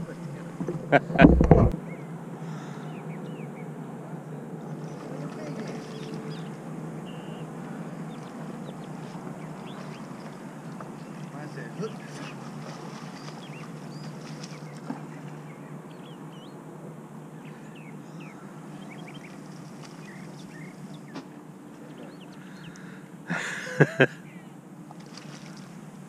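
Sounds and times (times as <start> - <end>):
steady rushing noise: 0.0 - 1.8
birds chirping: 0.0 - 24.6
loud sharp knocks: 1.1 - 1.8.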